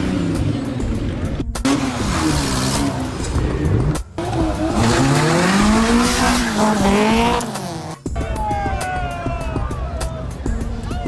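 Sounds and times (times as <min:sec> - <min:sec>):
car engine revving hard: 0:00.0 - 0:08.1
tyres squealing: 0:01.7 - 0:08.1.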